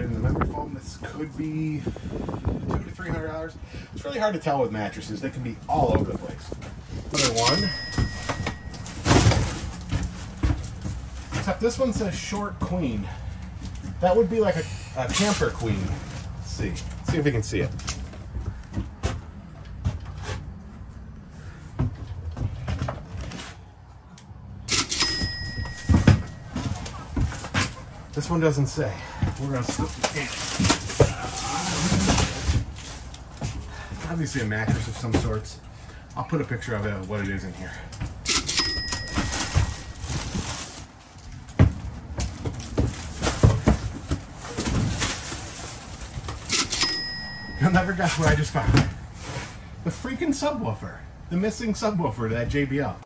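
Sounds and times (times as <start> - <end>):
plastic wrapping rustling: 29.4 - 33.4, 39.2 - 41.5, 42.3 - 46.5.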